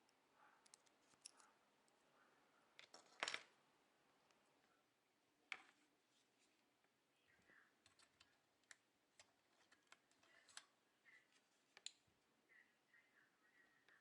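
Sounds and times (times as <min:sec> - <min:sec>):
small clicks and taps of tools: 0:11.7 - 0:12.0.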